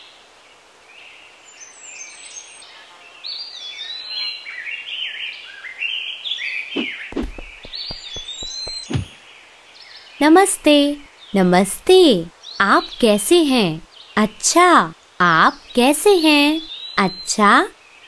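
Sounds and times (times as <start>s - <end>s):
outdoor hiss: 0.0s - 4.0s, 7.2s - 18.0s
small birds chirping: 6.4s - 18.0s
low thumps: 7.1s - 9.1s.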